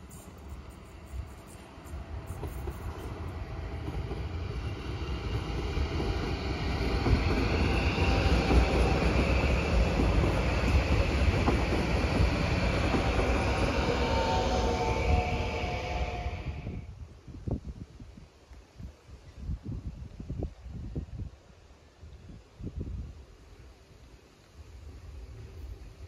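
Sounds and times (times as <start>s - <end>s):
train wheels rumbling on rails: 0.0s - 16.9s
high whine: 4.3s - 16.9s.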